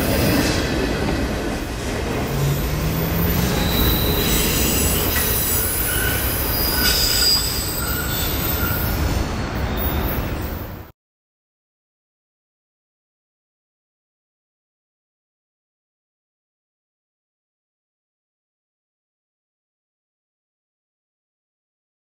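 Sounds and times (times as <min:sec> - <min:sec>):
freight cars rolling on rails: 0:00.0 - 0:10.9
high wheel squeals: 0:02.2 - 0:10.8.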